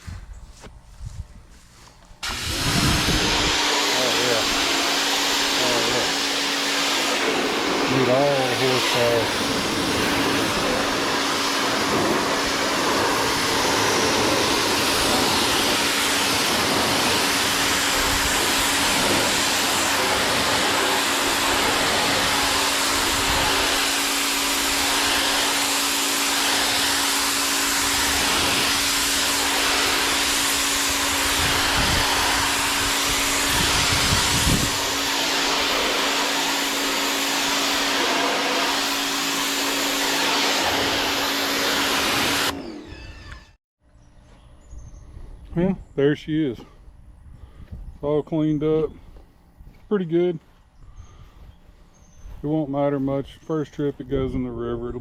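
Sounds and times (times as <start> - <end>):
pressure washer spraying: 2.2 - 43.4.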